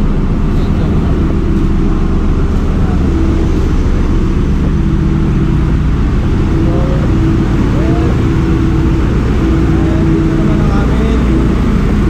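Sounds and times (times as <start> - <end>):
engine room machinery drone: 0.0 - 12.0.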